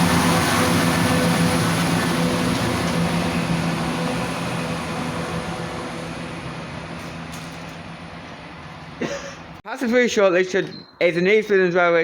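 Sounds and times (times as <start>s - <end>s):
rail rumble: 0.0s - 9.6s
train engine hum: 0.0s - 9.6s.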